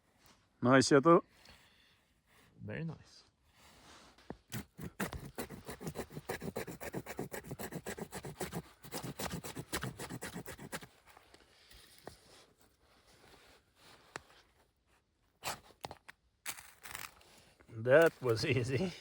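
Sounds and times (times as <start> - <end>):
knife scraping: 4.5 - 10.9.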